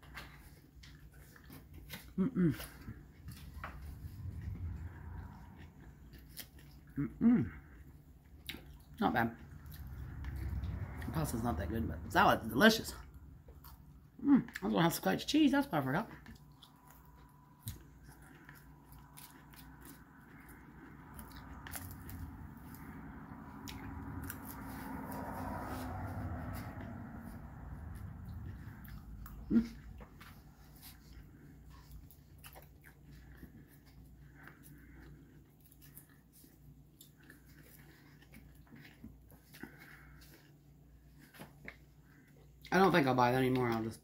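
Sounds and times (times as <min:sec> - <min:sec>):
chewing salad: 0:00.0 - 0:44.0
low steady hum: 0:00.0 - 0:44.0.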